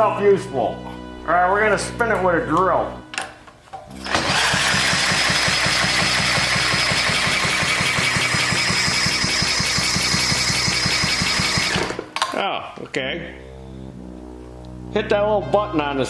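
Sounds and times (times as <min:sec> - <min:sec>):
electric drill whine: 0:03.9 - 0:12.1
engine turning over: 0:03.9 - 0:12.3.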